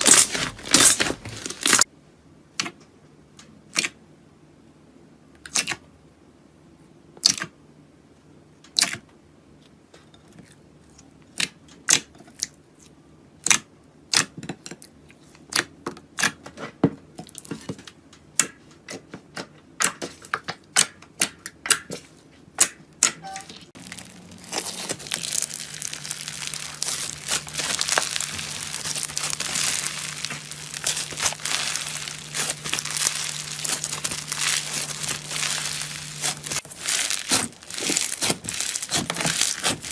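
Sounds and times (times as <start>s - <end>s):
crunchy material being crushed: 0.0s - 1.9s, 23.8s - 39.9s.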